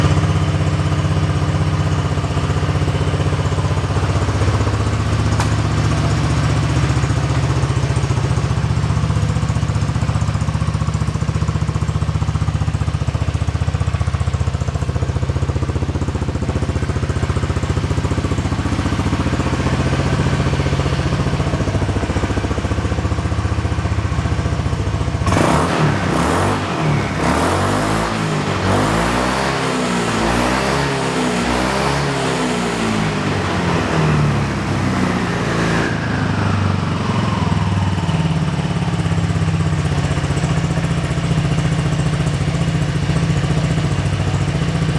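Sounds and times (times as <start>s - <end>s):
scooter engine idling: 0.0s - 44.9s
scooter throttle blips: 16.3s - 30.6s.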